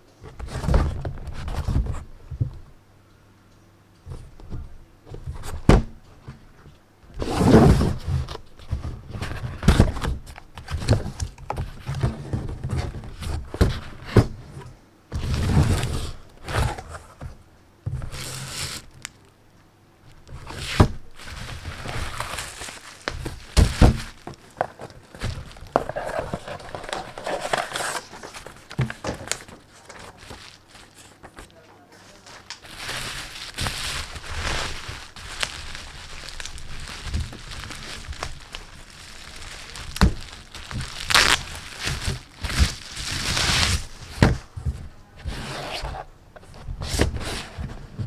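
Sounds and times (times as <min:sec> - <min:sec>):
rustling and sliding packaging: 0:00.3 - 0:02.7, 0:04.1 - 0:19.3, 0:20.1 - 0:48.0
knocks and thunks on box: 0:04.2 - 0:06.0, 0:20.3 - 0:31.4, 0:32.8 - 0:45.0.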